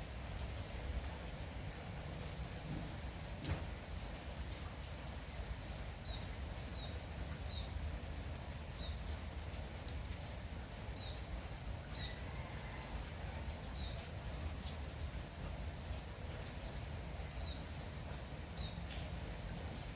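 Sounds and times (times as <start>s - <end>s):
light rain: 0.0s - 19.9s.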